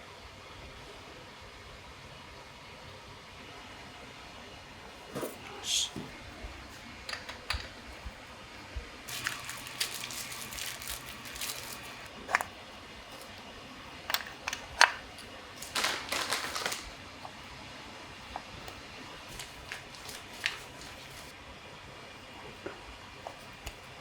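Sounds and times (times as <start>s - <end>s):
scraping and rustling: 9.1s - 12.5s, 19.3s - 21.3s.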